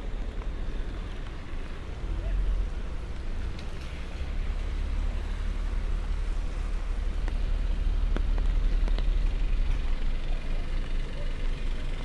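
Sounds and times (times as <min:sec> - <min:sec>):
light rain on wet pavement: 0:00.0 - 0:11.0
traffic rumble: 0:00.0 - 0:12.0.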